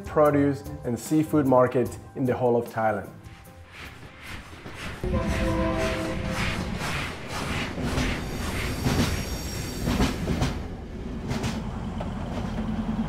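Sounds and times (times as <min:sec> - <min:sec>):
train wheels clacking on rails: 0:03.3 - 0:13.0
high wheel squeal: 0:03.4 - 0:10.6.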